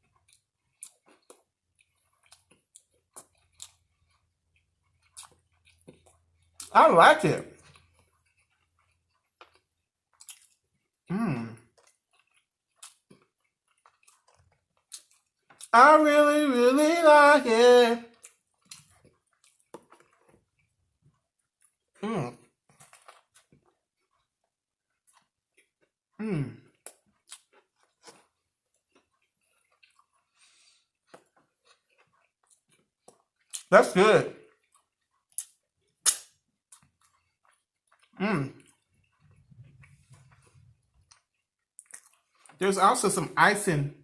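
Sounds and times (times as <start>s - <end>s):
person chewing food: 0.0s - 6.7s, 7.3s - 43.1s
person humming mmm: 11.1s - 11.6s, 26.2s - 26.6s
wet mouth clicks: 35.2s - 42.2s.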